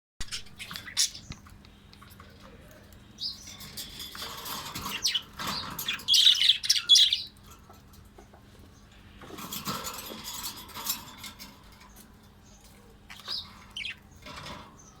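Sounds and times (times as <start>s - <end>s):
baby parrots chirping: 0.2s - 1.4s.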